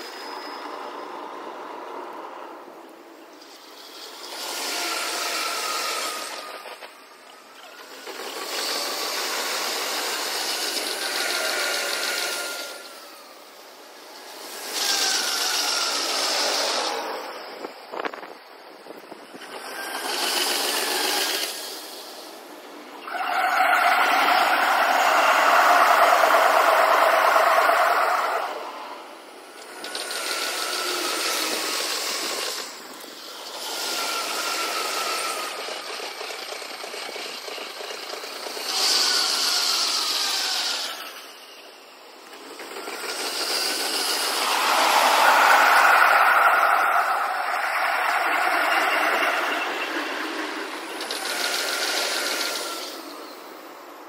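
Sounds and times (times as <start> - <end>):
sped-up train rattle: 3.7 - 41.0, 42.1 - 53.6
quick run of clicks: 19.4 - 22.0, 42.2 - 53.2.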